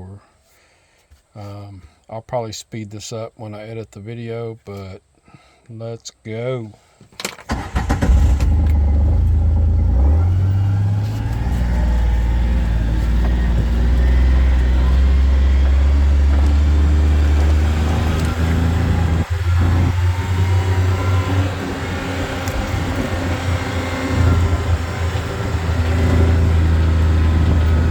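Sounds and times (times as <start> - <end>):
vehicle engine driving off: 7.5 - 27.9.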